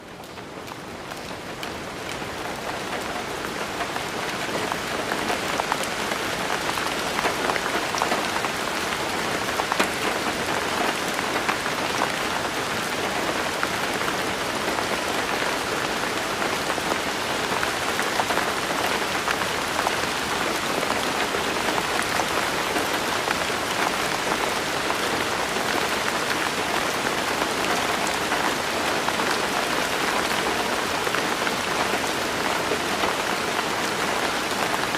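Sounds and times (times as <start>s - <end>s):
rain on hard surfaces: 0.0s - 34.9s.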